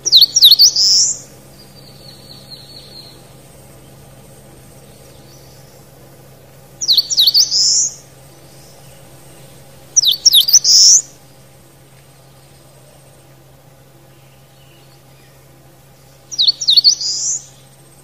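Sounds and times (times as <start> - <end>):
faint bird trill: 0.0 - 4.0, 6.8 - 11.4, 14.0 - 18.0
songbird singing: 0.0 - 18.0.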